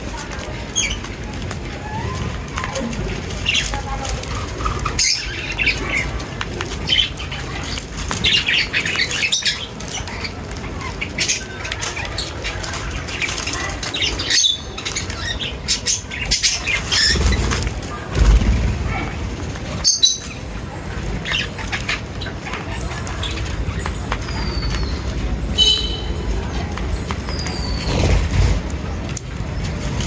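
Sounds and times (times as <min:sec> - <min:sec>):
small birds chirping and squawking: 0:00.0 - 0:30.0
wings flapping: 0:16.3 - 0:20.4, 0:27.3 - 0:28.9.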